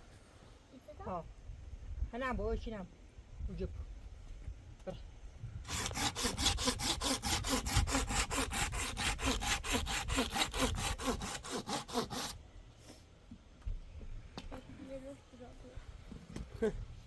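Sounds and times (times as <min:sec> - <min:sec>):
hand saw cutting wood: 0:05.7 - 0:12.4.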